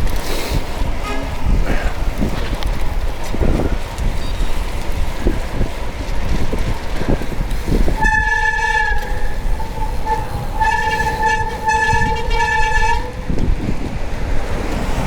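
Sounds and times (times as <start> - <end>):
vehicle horn blasts: 1.0 - 1.5, 8.0 - 13.4.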